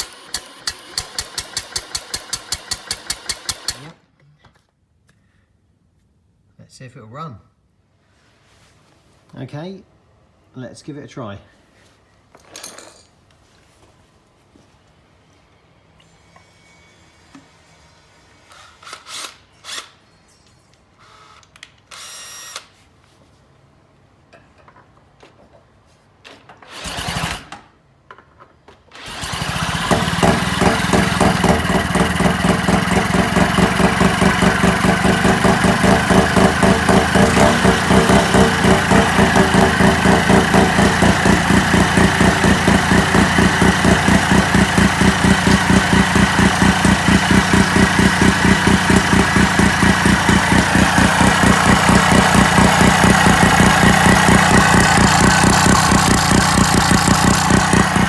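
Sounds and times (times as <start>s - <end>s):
electric drill cranking engine: 0.0s - 4.0s, 26.7s - 27.6s, 28.9s - 58.0s
engine running with fast pulsing: 29.1s - 58.0s.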